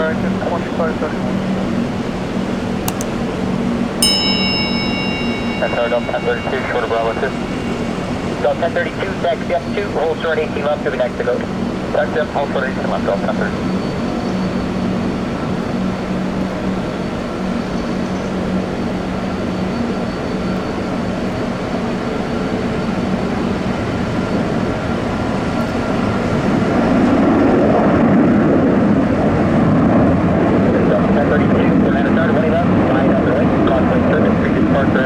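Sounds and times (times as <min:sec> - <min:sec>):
steady whining tones: 0:04.0 - 0:26.7
jet engines roaring: 0:08.0 - 0:20.0.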